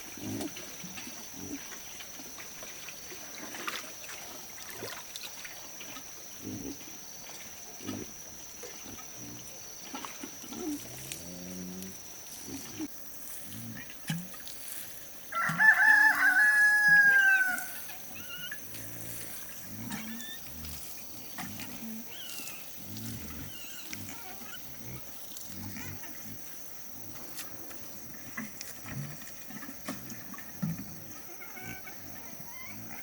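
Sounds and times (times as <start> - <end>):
rooster crowing: 15.3 - 17.8.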